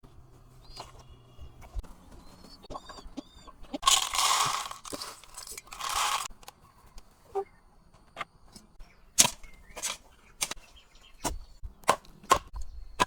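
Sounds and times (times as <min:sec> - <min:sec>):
harsh crunching noise: 0:03.8 - 0:06.4.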